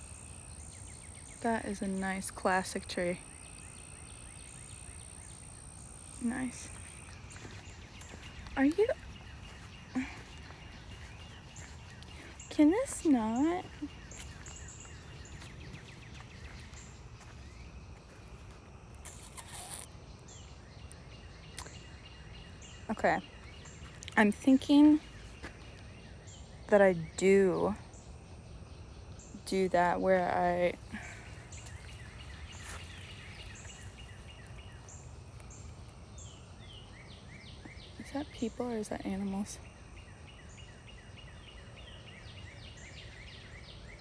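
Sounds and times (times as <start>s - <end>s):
faint bird chirps: 0.0s - 44.0s
rustle: 3.2s - 22.0s, 30.6s - 38.4s
higher faint chirps: 19.0s - 19.9s
small animal chirping: 19.0s - 19.9s.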